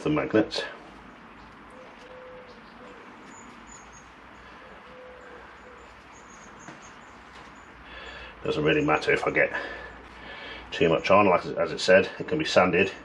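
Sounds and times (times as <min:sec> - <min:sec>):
low background hum: 0:00.0 - 0:13.0
high bird chirps: 0:01.4 - 0:08.2
cooing bird notes: 0:01.5 - 0:08.4.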